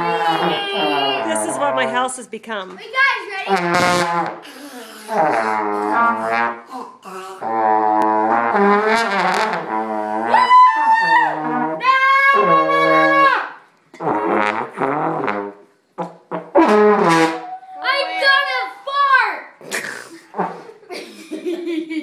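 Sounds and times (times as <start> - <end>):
brass instruments holding notes: 0.0 - 2.3, 3.4 - 10.3, 11.3 - 13.3, 14.0 - 15.5, 16.6 - 18.2.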